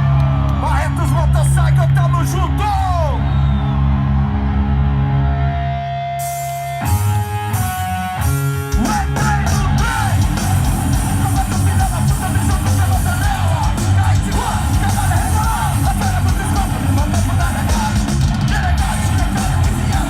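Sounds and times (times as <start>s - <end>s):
distorted electric guitar chords: 3.2s - 20.0s
heavy metal band playing: 3.8s - 20.0s.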